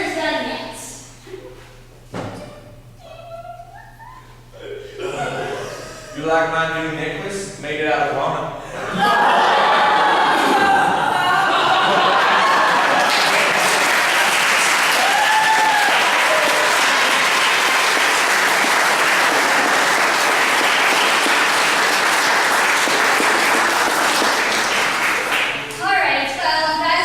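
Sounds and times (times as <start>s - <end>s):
audience applauding: 9.3s - 25.7s
whoop: 14.9s - 17.2s.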